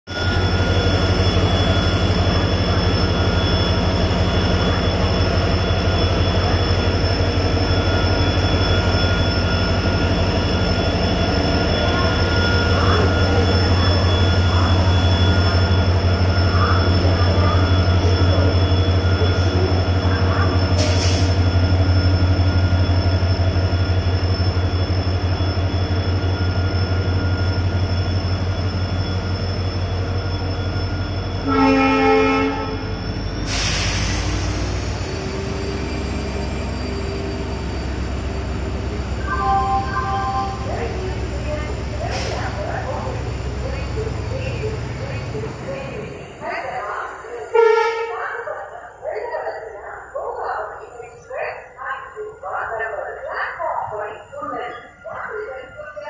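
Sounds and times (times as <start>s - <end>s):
train horn blast: 31.4s - 32.8s, 47.5s - 48.3s.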